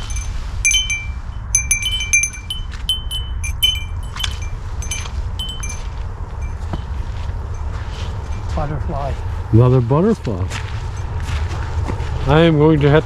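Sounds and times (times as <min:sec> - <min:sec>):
metal wind chimes ringing: 0:00.0 - 0:09.5
steady low rumble: 0:00.0 - 0:11.4.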